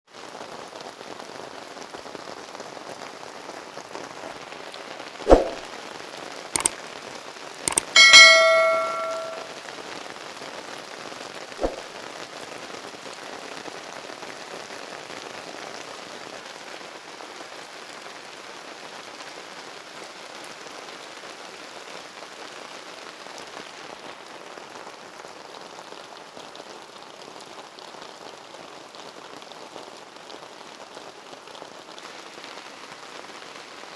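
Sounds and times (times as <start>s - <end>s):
rain falling: 0.1s - 7.6s, 9.4s - 33.9s
ringing metallic clang: 7.7s - 9.5s.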